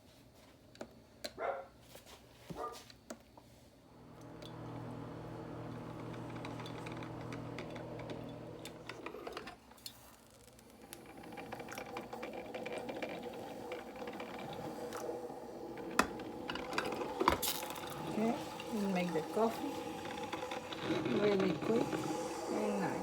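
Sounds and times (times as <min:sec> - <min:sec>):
coffee maker humming: 0:03.8 - 0:23.0
small clicks and crackles: 0:05.8 - 0:22.9.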